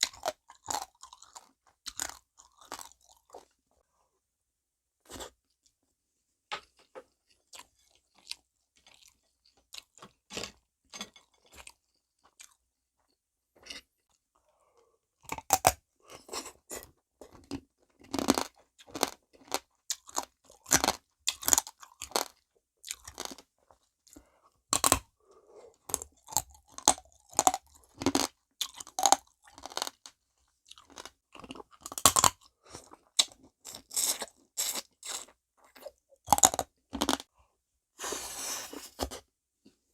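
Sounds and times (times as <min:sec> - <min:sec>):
crunching crab shells: 0:25.9 - 0:32.4.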